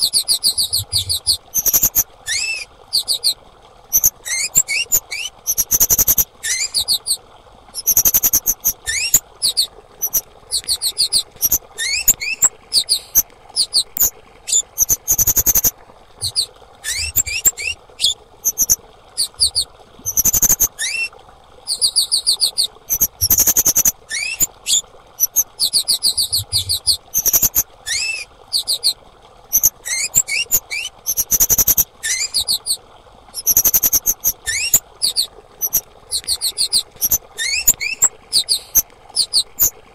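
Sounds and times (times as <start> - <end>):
high sweeping bird calls: 0.0 - 3.4, 4.0 - 7.2, 7.8 - 21.1, 21.7 - 29.0, 29.6 - 32.8, 33.4 - 39.7
upward bird chirps: 7.8 - 21.1, 33.4 - 39.7.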